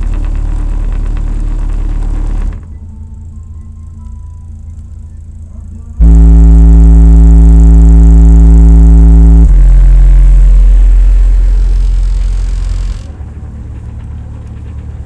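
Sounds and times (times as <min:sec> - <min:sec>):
deep bass music: 0:06.0 - 0:15.0.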